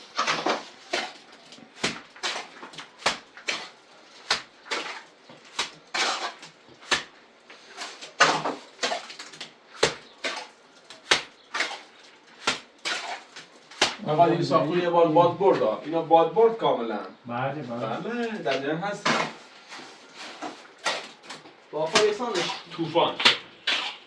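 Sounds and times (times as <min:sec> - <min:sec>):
short scrape: 0:23.6 - 0:24.0.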